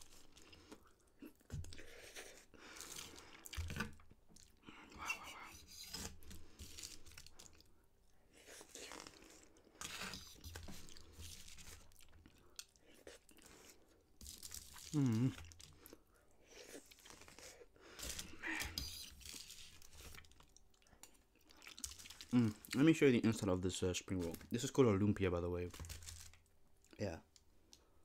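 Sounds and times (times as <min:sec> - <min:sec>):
wet chewing noises: 0:06.2 - 0:22.9.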